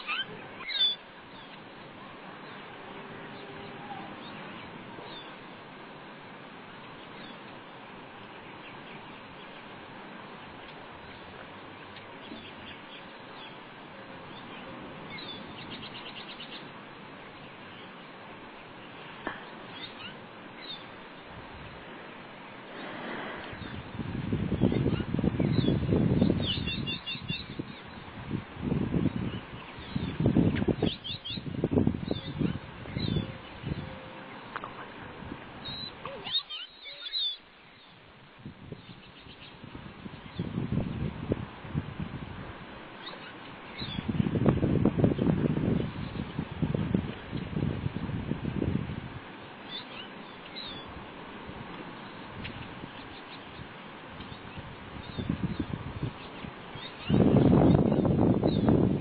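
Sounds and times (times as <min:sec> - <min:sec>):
bird chirps: 0:00.0 - 0:01.6, 0:35.6 - 0:38.0, 0:52.0 - 0:58.8
small birds chirping: 0:00.0 - 0:05.7, 0:06.7 - 0:35.0, 0:35.6 - 0:40.8, 0:42.9 - 0:47.6, 0:49.4 - 0:51.1, 0:51.7 - 0:59.0
outdoor background hiss: 0:00.0 - 0:59.0.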